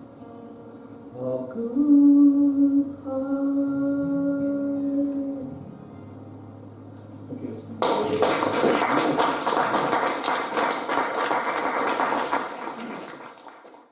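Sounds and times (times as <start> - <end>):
audience applause: 7.8 - 13.9.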